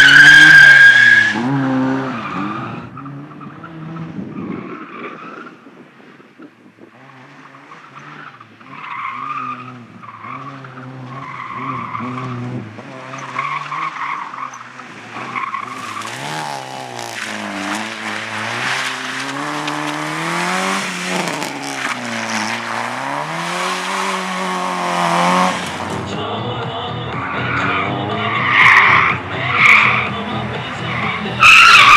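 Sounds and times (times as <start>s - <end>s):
car engine revving: 0.0s - 4.3s, 6.8s - 31.9s
tyres squealing: 30.8s - 31.9s.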